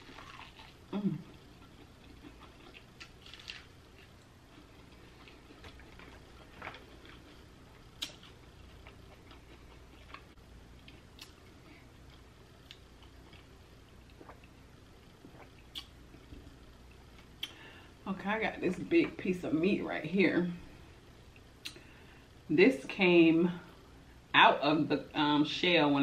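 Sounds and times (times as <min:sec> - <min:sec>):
chewing corn on the cob: 0:00.0 - 0:14.6.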